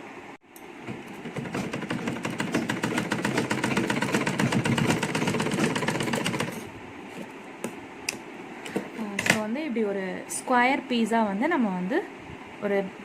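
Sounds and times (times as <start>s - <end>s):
sewing machine stitching: 0.8s - 6.7s.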